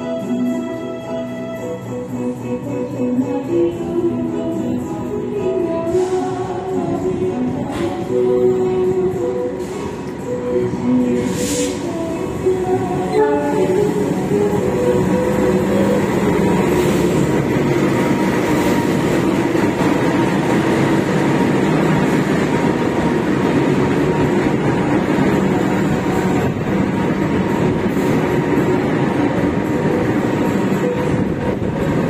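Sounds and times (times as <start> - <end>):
train coaches rolling on rails: 0.0 - 32.0
locomotive engine running: 12.2 - 32.0.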